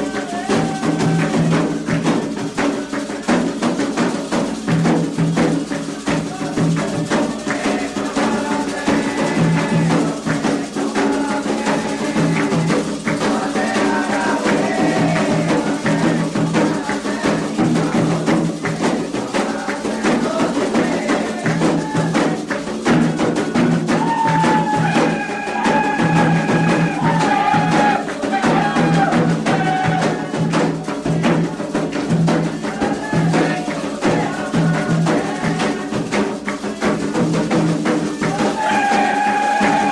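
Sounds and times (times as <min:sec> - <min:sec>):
person chanting: 0:00.0 - 0:01.8, 0:06.0 - 0:18.3, 0:23.4 - 0:31.5
hand drums: 0:00.0 - 0:39.9
struck bell rhythm: 0:00.0 - 0:39.9.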